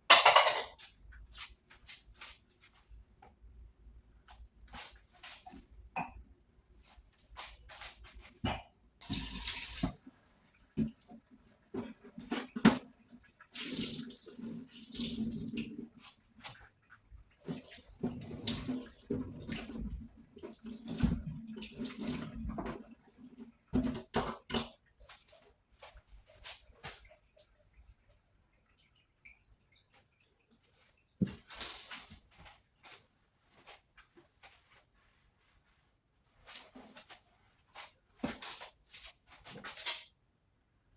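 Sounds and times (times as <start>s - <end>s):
dishes clicking and knocking: 0.1s - 0.9s
tap water running: 9.0s - 16.2s, 17.4s - 24.2s.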